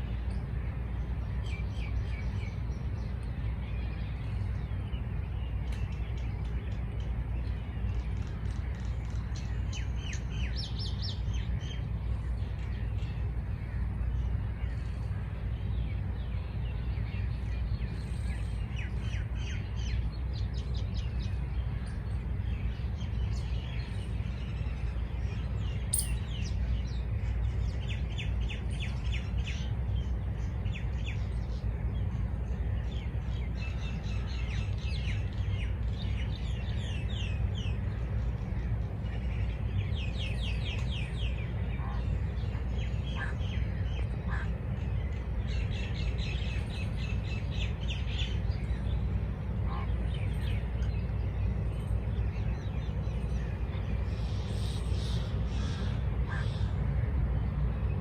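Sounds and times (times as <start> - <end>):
steady low rumble: 0.0 - 58.0
small birds chirping: 14.1 - 31.7, 33.0 - 56.8.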